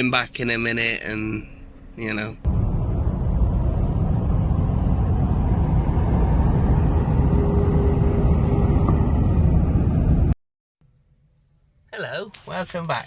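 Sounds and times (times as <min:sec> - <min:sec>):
lorry engine rumbling: 0:00.0 - 0:10.4.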